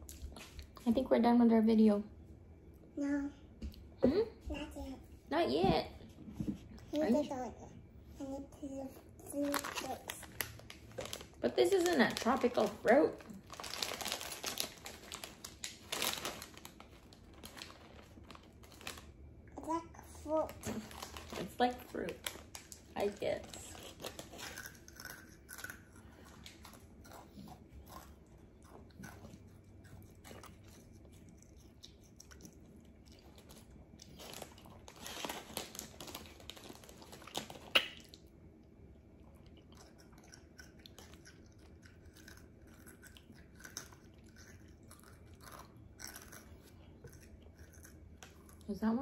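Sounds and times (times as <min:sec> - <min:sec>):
chewing and biting food: 0:23.7 - 0:38.3, 0:39.1 - 0:48.7.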